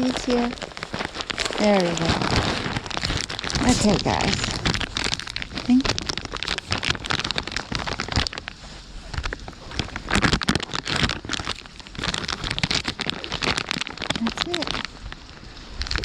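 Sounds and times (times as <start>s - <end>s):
rain falling: 0.0s - 8.4s.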